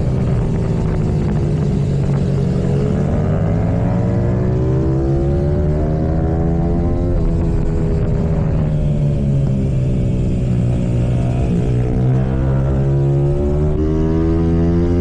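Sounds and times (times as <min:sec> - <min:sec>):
motorbike engine revving: 0:00.0 - 0:15.0.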